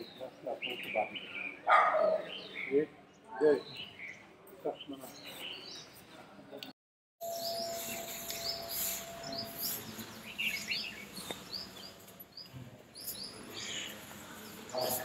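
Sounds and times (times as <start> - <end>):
small birds chirping: 0.0 - 6.3, 7.2 - 15.0
faint steady tone: 7.2 - 10.2.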